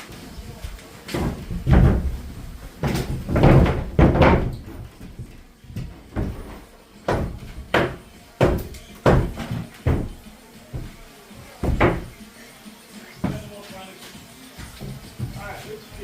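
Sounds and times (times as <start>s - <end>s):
hammer knocking on timber: 1.2s - 6.4s, 7.1s - 11.0s, 11.6s - 12.2s.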